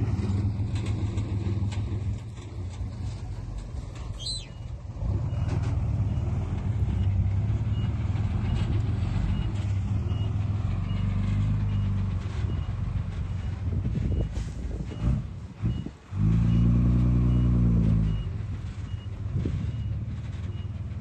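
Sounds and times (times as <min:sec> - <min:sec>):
diesel engine running: 0:00.0 - 0:21.0
reversing alarm beeping: 0:16.5 - 0:20.8.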